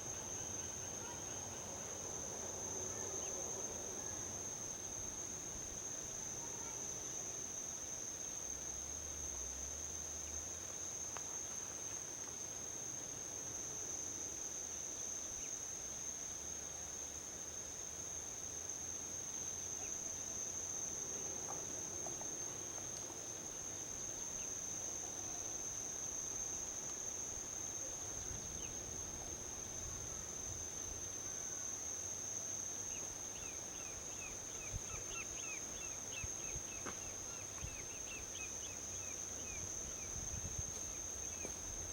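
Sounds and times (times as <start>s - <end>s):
insects trilling: 17.0s - 41.9s.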